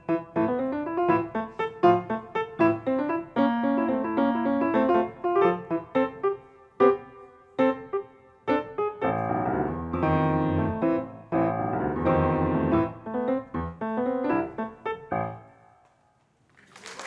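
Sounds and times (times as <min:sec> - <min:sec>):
child playing piano: 0:00.0 - 0:15.5.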